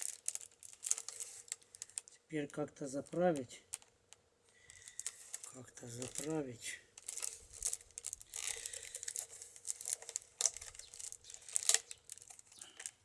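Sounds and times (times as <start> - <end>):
basket strips rustling and crackling: 0.0 - 2.2, 4.6 - 6.4, 7.0 - 13.0.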